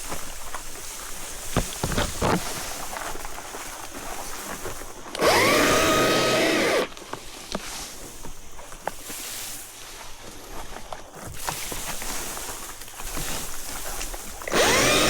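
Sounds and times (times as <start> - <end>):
chainsaw electric motor whine: 5.1 - 7.0, 14.4 - 15.0.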